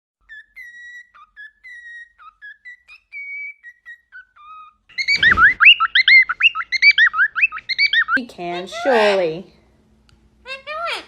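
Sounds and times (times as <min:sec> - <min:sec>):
parrot whistling a tune: 0:00.2 - 0:08.2
fast chirping whistles: 0:00.3 - 0:08.2.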